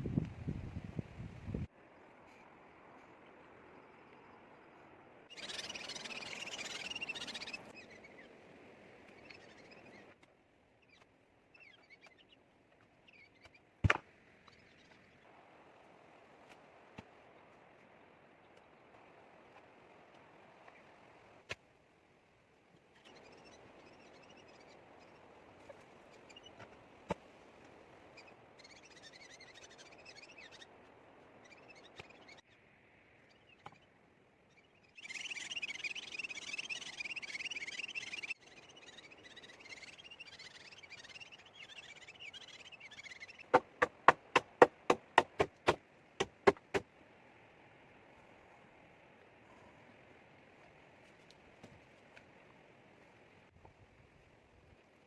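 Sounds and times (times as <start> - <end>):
rapid sharp knocks: 43.5 - 46.8.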